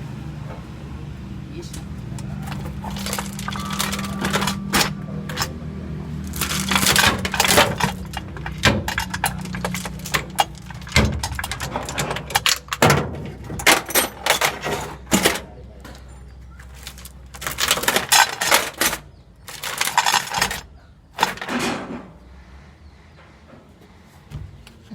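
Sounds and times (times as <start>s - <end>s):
low hum: 0.0s - 14.5s
metallic knocks and clanks: 1.7s - 22.3s.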